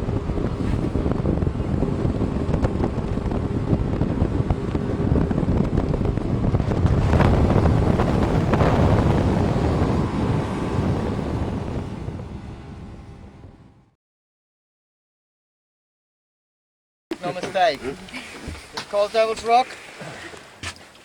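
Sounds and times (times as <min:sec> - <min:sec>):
wind buffeting microphone: 0:00.0 - 0:13.9
boat engine drone: 0:00.0 - 0:14.0.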